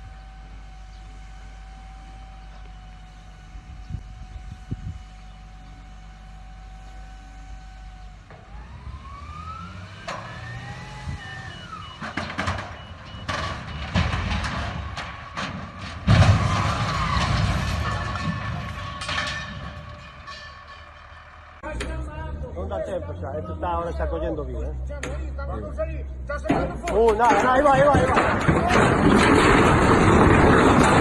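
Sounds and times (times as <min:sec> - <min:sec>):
heavy engine running: 0:00.0 - 0:31.0
clattering knocks: 0:11.8 - 0:22.0, 0:26.4 - 0:31.0
loud crash-like impact: 0:13.3 - 0:21.6.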